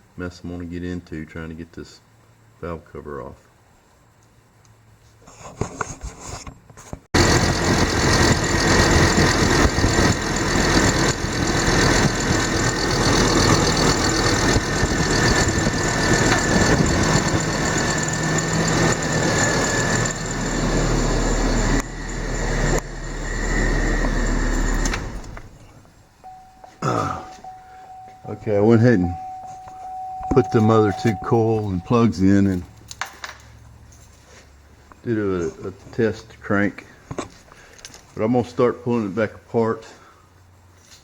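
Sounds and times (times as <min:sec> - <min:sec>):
car engine starting and running: 0:07.2 - 0:33.8.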